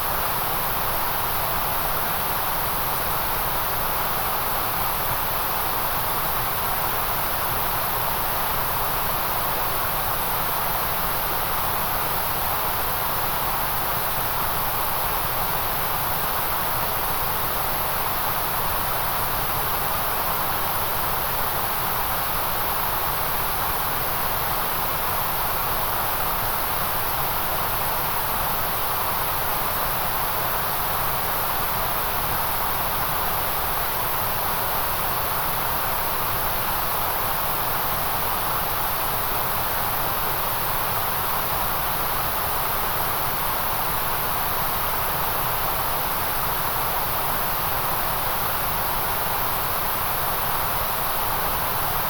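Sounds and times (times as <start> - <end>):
white noise hiss: 0.0 - 52.0.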